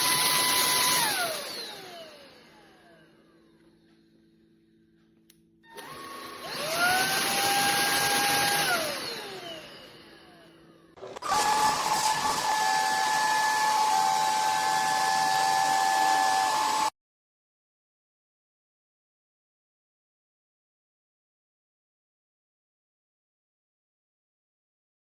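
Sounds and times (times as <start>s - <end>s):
stick vacuum motor whining: 0.0s - 4.0s, 5.6s - 16.9s.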